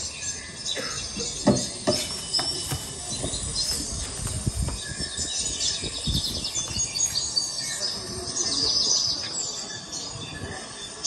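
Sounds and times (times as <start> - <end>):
birds chirping and trilling: 0.0 - 11.0.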